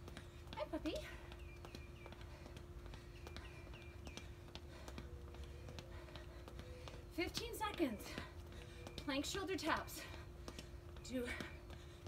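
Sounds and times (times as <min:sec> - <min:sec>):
steady low hum: 0:00.0 - 0:12.0
faint bird chirps: 0:01.2 - 0:04.6.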